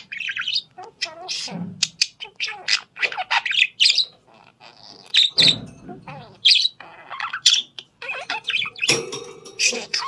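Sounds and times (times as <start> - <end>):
parrot chirping: 0.0 - 10.0.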